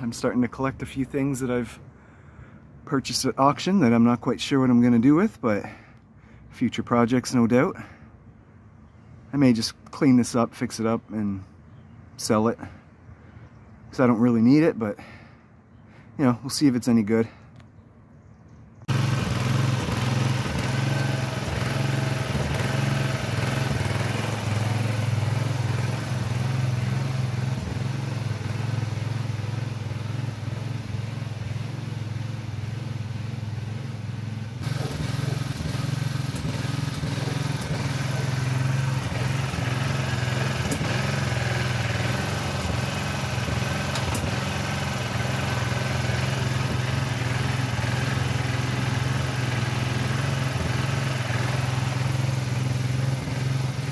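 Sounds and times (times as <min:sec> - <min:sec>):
small tractor engine running: 0:18.9 - 0:53.9.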